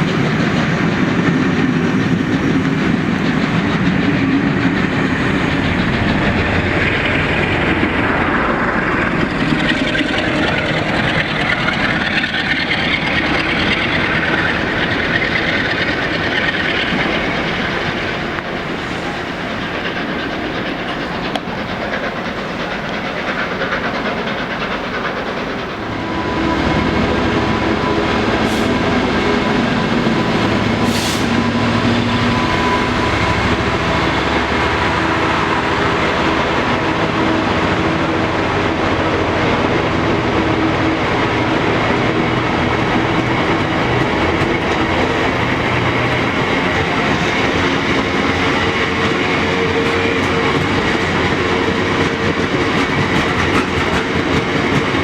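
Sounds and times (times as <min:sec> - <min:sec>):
train running on track: 0:00.0 - 0:55.0
brief high hisses: 0:30.9 - 0:31.4.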